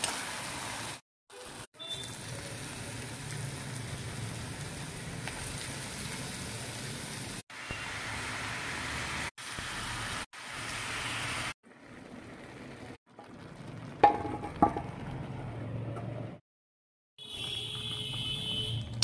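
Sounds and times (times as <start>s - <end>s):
mushrooms sizzling in a pan: 2.0s - 11.6s.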